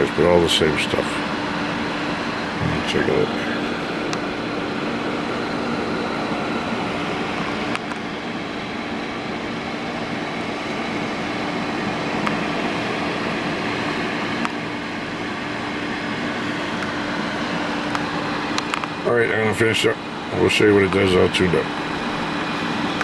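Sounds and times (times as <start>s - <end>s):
low hum: 2.2s - 6.0s.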